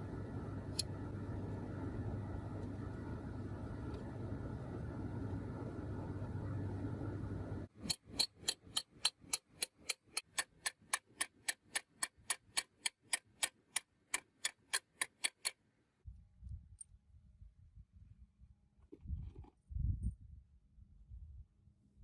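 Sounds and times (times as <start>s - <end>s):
faint low rumble: 0.0s - 7.7s
steady noise: 0.0s - 7.8s
fast sharp ticks: 7.8s - 15.6s.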